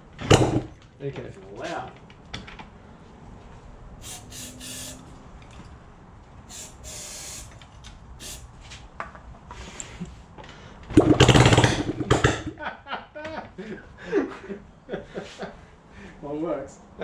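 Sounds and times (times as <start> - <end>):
aerosol spray hisses: 4.0 - 5.1, 6.5 - 7.6, 8.2 - 8.6.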